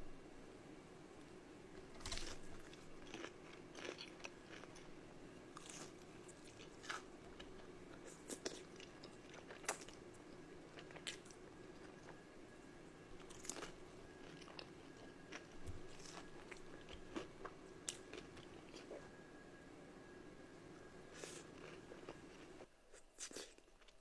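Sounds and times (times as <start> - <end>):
faint steady hum: 0.0 - 24.0
crunchy bites: 1.9 - 4.8
person chewing: 2.0 - 4.9, 5.6 - 12.2, 13.2 - 19.0, 21.1 - 23.9.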